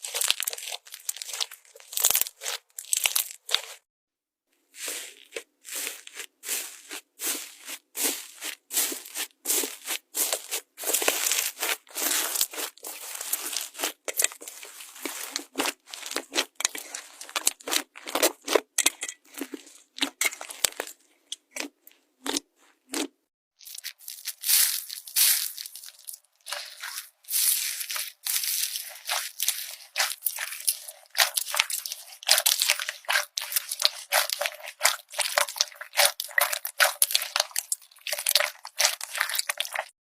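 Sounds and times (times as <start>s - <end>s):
slime crackling and popping: 0.0s - 3.8s, 10.8s - 18.6s, 23.6s - 39.9s.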